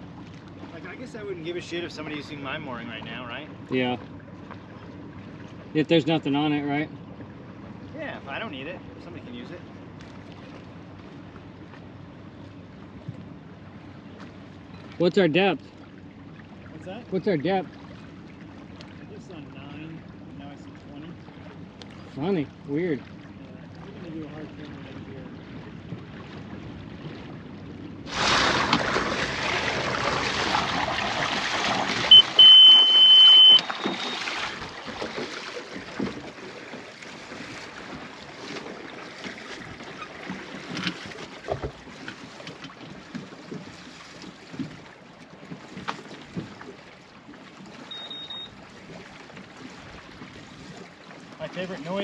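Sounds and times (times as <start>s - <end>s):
high alarm beep: 32.1s - 34.4s, 47.9s - 48.6s.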